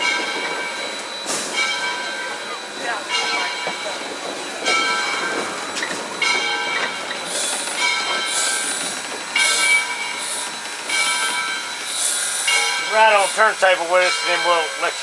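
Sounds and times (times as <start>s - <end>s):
high metallic squeal with hiss: 7.2s - 15.0s.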